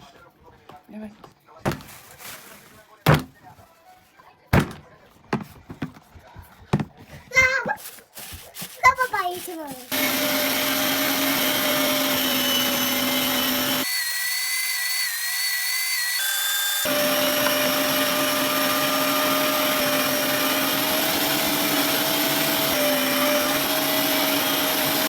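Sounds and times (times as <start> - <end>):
appliance motor humming: 9.9 - 13.9, 16.2 - 25.0.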